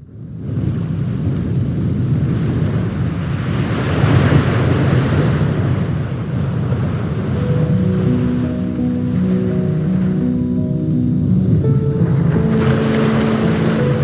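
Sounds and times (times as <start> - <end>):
wind buffeting microphone: 0.0 - 14.0
sea waves: 0.6 - 14.0
music: 7.2 - 14.0.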